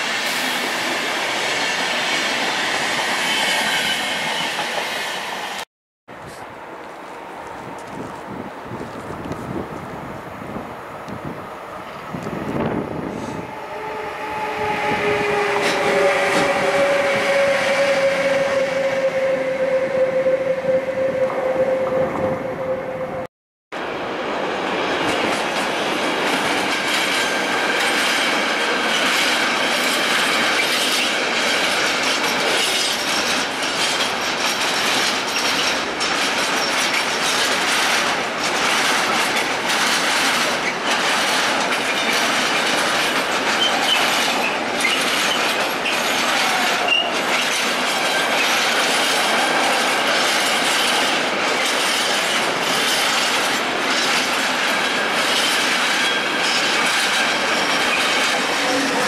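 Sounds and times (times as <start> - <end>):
train rumble: 6.2 - 59.0
wheels clacking over rail joints: 25.0 - 59.0
wheel squeal: 43.5 - 49.3.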